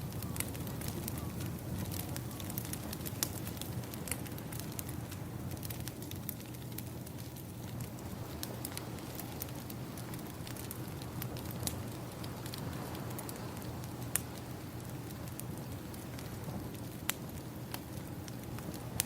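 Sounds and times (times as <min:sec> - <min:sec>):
wood fire crackling: 0:00.0 - 0:19.0
ocean waves: 0:08.0 - 0:15.3.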